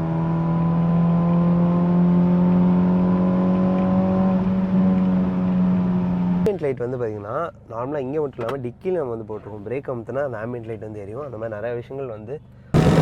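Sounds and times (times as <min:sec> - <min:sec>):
car engine at high revs: 0:00.0 - 0:06.5, 0:12.8 - 0:13.0.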